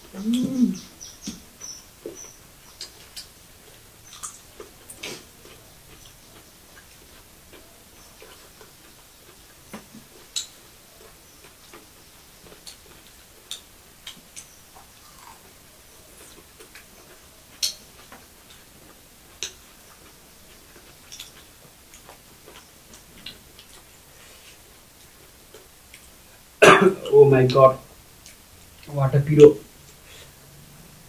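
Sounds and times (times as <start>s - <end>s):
chewing: 1.2s - 26.4s.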